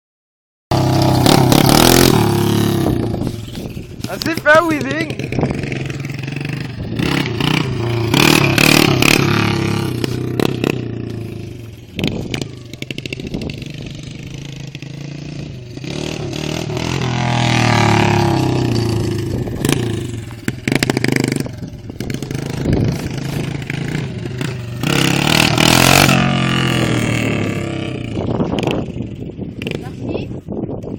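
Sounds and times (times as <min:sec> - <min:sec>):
dirt bike engine revving: 0:00.7 - 0:29.0.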